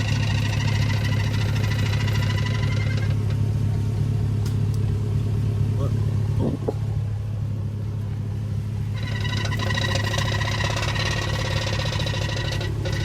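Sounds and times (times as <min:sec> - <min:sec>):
high-pitched pulsing squeal: 0:00.0 - 0:03.4, 0:08.8 - 0:13.0
truck engine running: 0:00.0 - 0:13.0.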